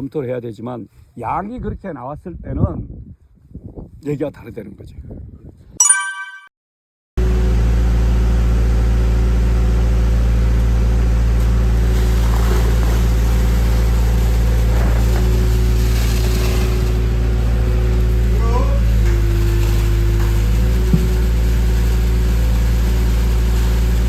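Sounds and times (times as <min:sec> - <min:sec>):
engine running with deep hum: 0:07.2 - 0:24.0.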